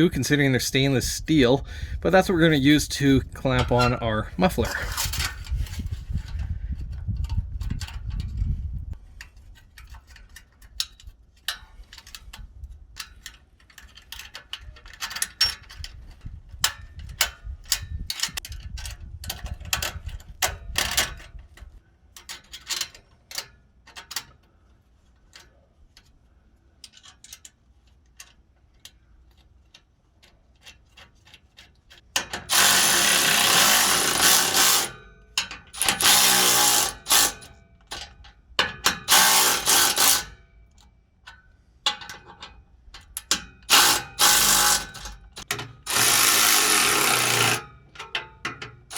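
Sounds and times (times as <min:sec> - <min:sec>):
hand ratchet clicking: 0:32.2 - 0:38.1, 0:38.9 - 0:40.4, 0:43.2 - 0:48.3.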